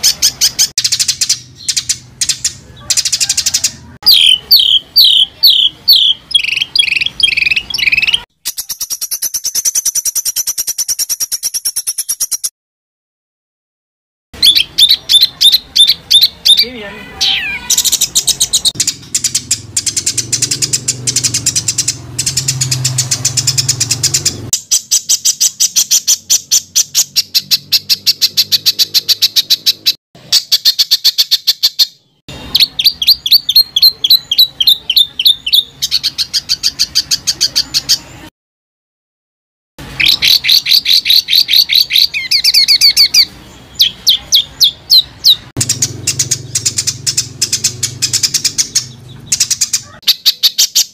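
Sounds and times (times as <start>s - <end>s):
songbird harsh rapid calls: 0.0s - 10.3s, 40.0s - 50.9s.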